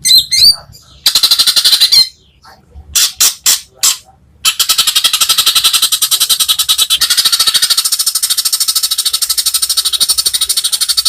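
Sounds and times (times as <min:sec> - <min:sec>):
animal rattling trill: 0:04.5 - 0:11.0.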